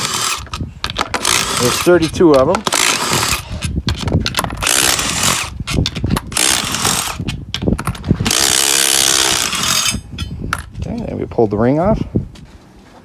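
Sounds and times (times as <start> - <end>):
impact wrench bursts: 0.0 - 3.6, 4.6 - 5.6, 6.3 - 7.3, 8.2 - 10.0.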